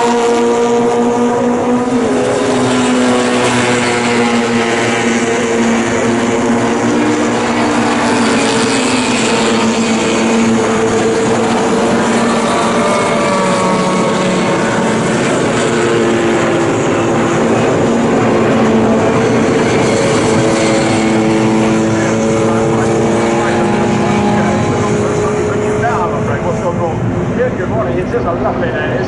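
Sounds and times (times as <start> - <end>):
racing car engines running hard: 0.0 - 29.0.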